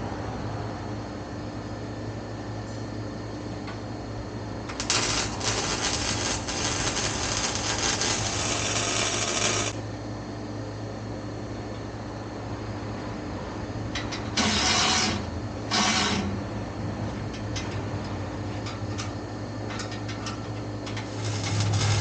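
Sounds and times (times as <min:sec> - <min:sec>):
shop hum: 0:00.0 - 0:22.0
welder crackling hiss: 0:04.7 - 0:09.8, 0:21.0 - 0:22.0.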